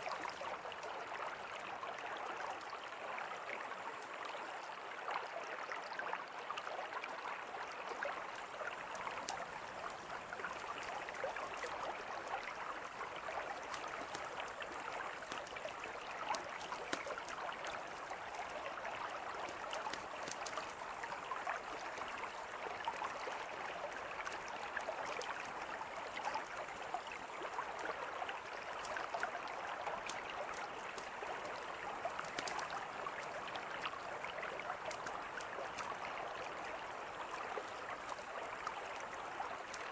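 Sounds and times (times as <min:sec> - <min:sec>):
river flowing: 0:00.0 - 0:39.9
campfire crackling and popping: 0:13.3 - 0:22.1, 0:30.0 - 0:33.4.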